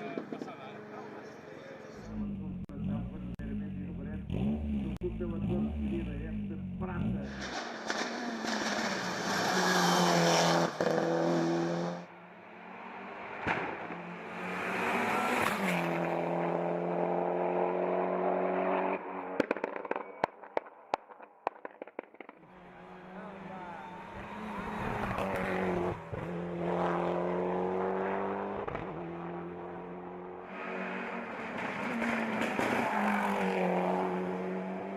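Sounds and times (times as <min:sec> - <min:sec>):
race car engine at full throttle: 0:00.0 - 0:20.7, 0:22.2 - 0:34.9
exhaust pops and cracks: 0:19.4 - 0:22.4.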